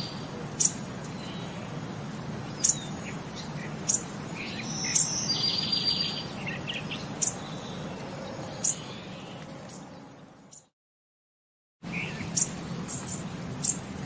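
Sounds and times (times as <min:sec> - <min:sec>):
birds chirping: 0:00.0 - 0:10.7, 0:11.8 - 0:14.0
bird trill: 0:02.5 - 0:09.9, 0:11.9 - 0:13.9.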